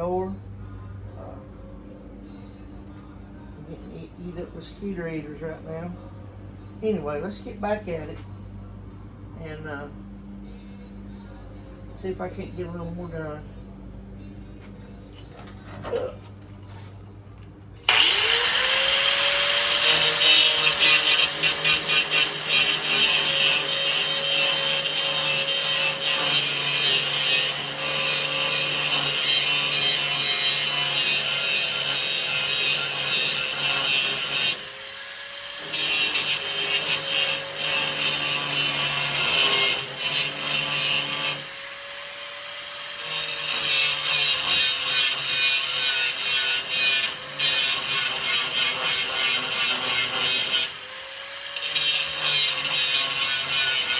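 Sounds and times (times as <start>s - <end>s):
angle grinder motor spinning: 17.9s - 53.9s
grinding on sheet metal: 17.9s - 53.9s.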